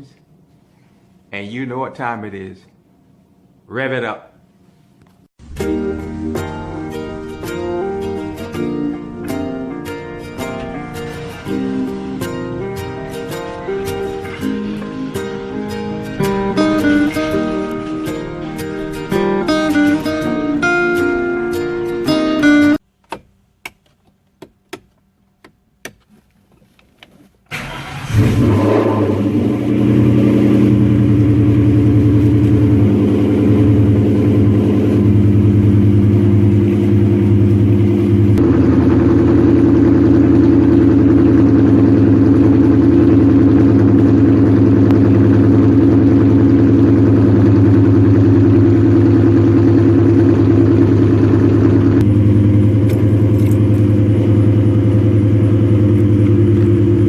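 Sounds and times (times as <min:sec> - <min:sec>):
car engine cranking and running: 0:27.5 - 0:57.0.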